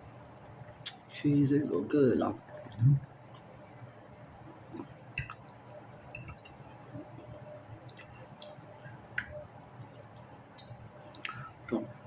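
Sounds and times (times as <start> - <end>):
person chewing food: 6.2 - 11.8
sharp mouth clicks: 10.6 - 11.5.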